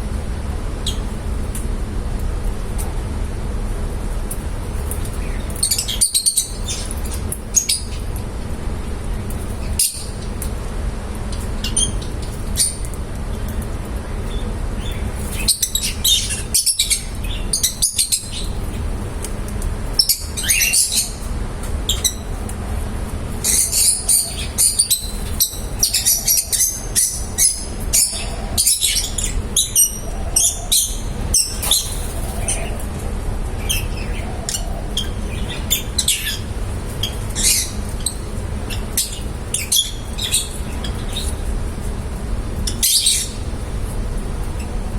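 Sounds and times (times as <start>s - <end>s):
low background hum: 0.0s - 44.9s
lovebirds chirping: 4.8s - 8.2s, 14.2s - 22.5s, 23.3s - 32.8s, 33.6s - 41.5s, 42.6s - 44.9s.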